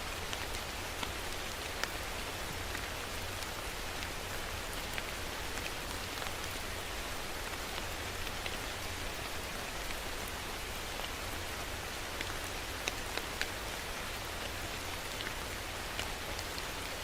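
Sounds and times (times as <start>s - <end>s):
steady rain hiss: 0.0s - 17.0s
raindrop ticks: 12.0s - 13.6s.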